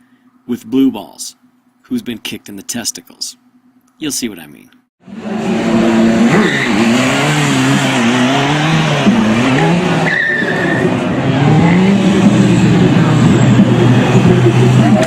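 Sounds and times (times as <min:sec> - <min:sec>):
motorcycle engine revving: 0:05.0 - 0:15.0
tyre squeal: 0:06.2 - 0:07.1, 0:09.6 - 0:12.0.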